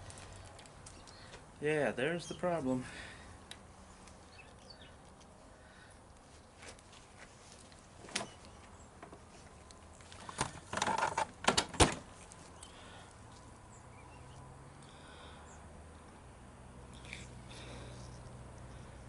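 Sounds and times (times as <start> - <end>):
metal parts rattling and scraping: 10.5 - 11.3.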